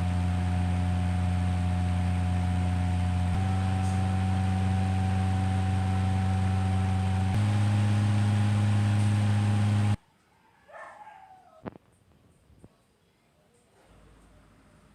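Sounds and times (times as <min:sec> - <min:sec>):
electric fan humming: 0:00.0 - 0:10.0.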